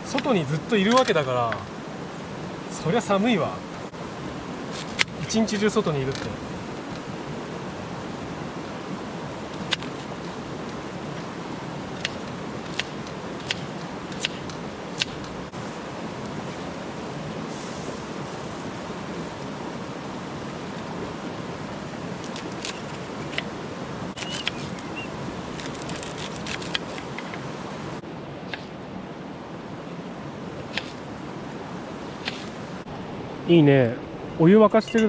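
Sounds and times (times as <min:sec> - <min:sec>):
steady rushing noise: 0:00.0 - 0:35.0
campfire crackling and popping: 0:11.9 - 0:15.6.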